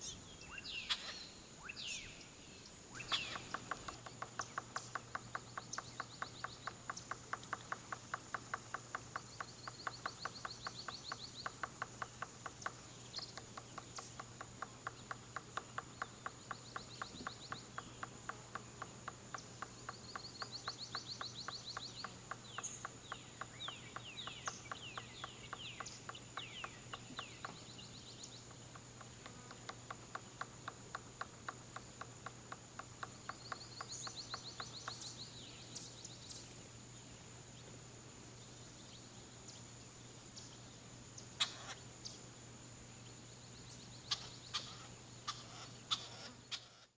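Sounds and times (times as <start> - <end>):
high insect-like tone: 3.0 - 36.4
woodpecker pecking on wood: 3.1 - 27.7, 28.4 - 35.0.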